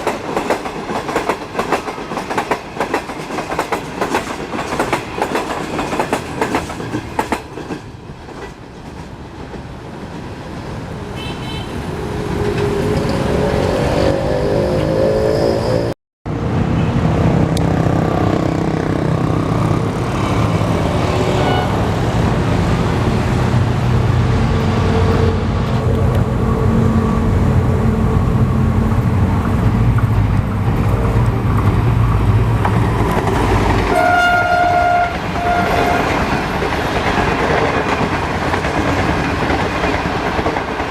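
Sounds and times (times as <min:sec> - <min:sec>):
locomotive horn blast: 0:11.2 - 0:11.9, 0:21.1 - 0:22.1, 0:33.9 - 0:36.2
locomotive engine drone: 0:12.1 - 0:34.0.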